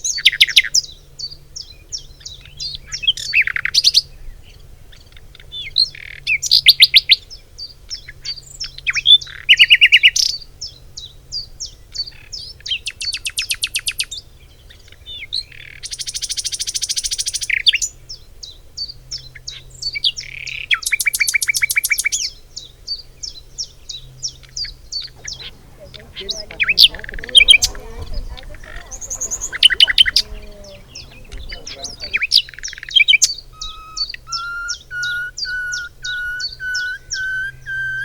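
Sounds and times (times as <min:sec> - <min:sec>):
bird rapid trills: 0:25.0 - 0:34.3
high bird chirps: 0:25.2 - 0:38.0.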